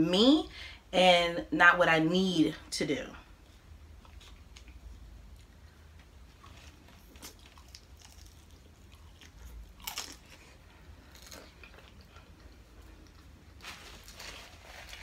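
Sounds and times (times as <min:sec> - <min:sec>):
biting and chewing crunchy food: 0:04.0 - 0:15.0.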